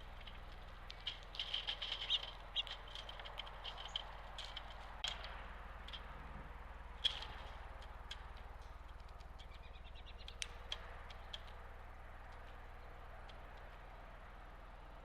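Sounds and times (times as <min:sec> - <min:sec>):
small birds chip calls: 0:00.0 - 0:15.0
steady low hum: 0:00.0 - 0:15.0
sharp clicks: 0:06.9 - 0:14.7.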